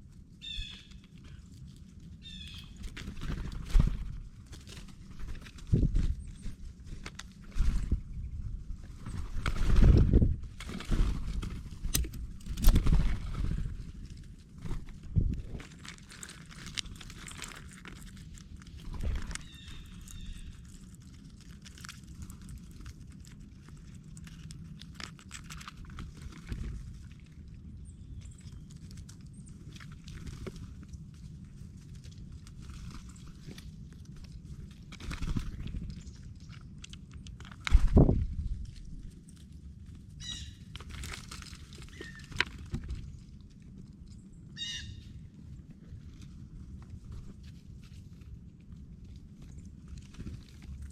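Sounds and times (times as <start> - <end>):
low background rumble: 0.0 - 50.9
taps and rustling in seed: 9.2 - 22.9, 40.3 - 43.8
blue jay harsh call: 40.2 - 40.6, 44.6 - 45.1.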